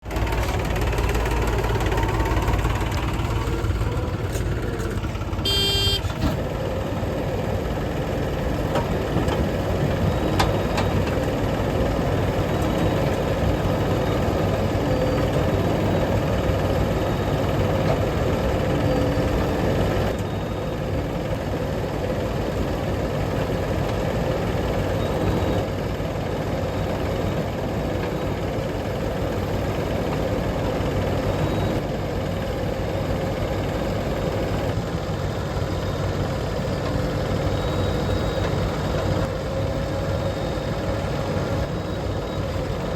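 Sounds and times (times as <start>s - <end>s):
heavy diesel engines running: 0.0s - 42.9s
horn honk: 5.1s - 6.4s.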